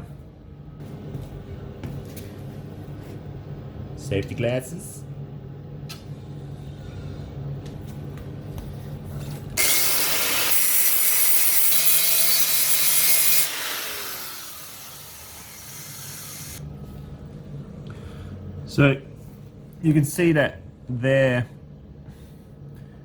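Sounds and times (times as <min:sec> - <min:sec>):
grinder grinding steel: 0:09.6 - 0:16.6
grinder winding down whine: 0:13.3 - 0:16.6.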